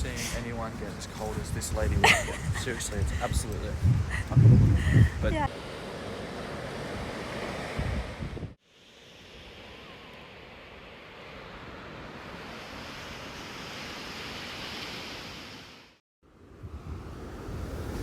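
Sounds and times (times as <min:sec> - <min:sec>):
wind rumbling on microphone: 0:00.0 - 0:05.5, 0:06.9 - 0:08.6, 0:16.4 - 0:18.0
ocean waves washing onto beach: 0:00.0 - 0:18.0.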